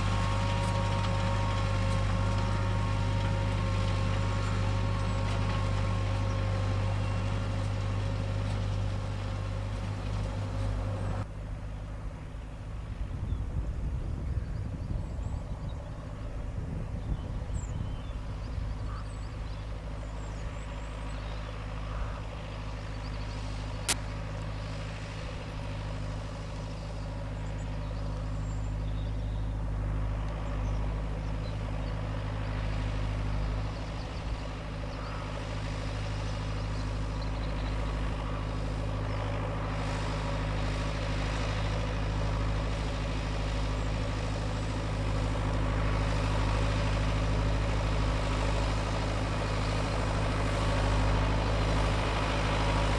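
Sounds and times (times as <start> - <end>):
tractor diesel engine running: 0.0 - 52.9.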